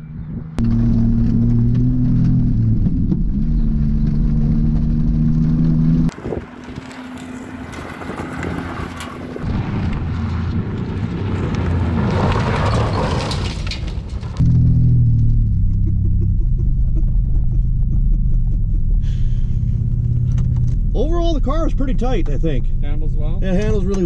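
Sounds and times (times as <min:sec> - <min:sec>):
wind: 0:00.0 - 0:24.0
car on gravel: 0:00.6 - 0:24.0
car engine running hard: 0:14.4 - 0:24.0.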